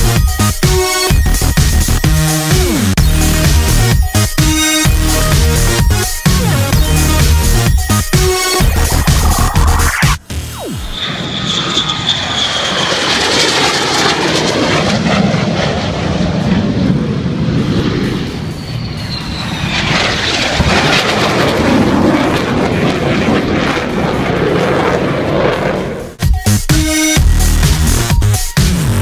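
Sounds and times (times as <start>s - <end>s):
propeller aircraft flying past: 8.5s - 26.2s.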